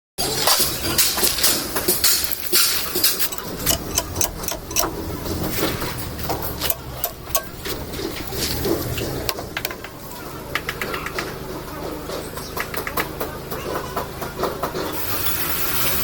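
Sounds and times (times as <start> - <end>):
hand tools clinking on metal: 0.3 - 9.8.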